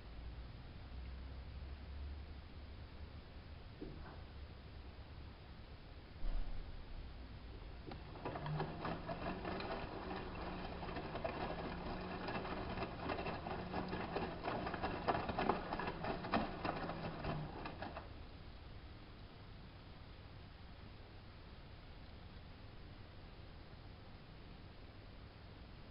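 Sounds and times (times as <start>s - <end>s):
washing machine drum turning: 7.9s - 18.0s.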